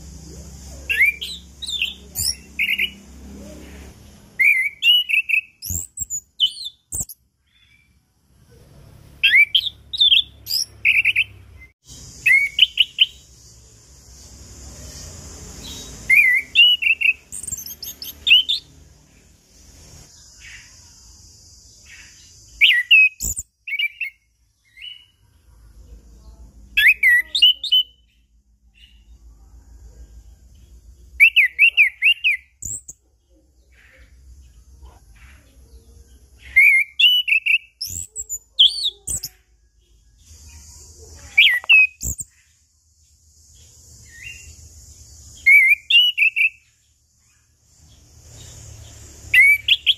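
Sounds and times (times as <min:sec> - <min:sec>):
thrush warbling whistled song: 0:00.0 - 0:03.1, 0:04.3 - 0:07.9, 0:09.2 - 0:13.4, 0:15.6 - 0:18.8, 0:22.0 - 0:25.1, 0:31.2 - 0:32.9, 0:36.4 - 0:39.4, 0:45.4 - 0:46.6, 0:49.2 - 0:49.9.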